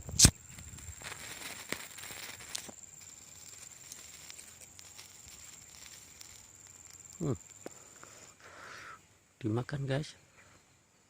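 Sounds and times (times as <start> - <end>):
wind hiss: 0.0 - 9.3
insect high-pitched tone: 0.0 - 11.0
faint clicks: 1.5 - 8.2.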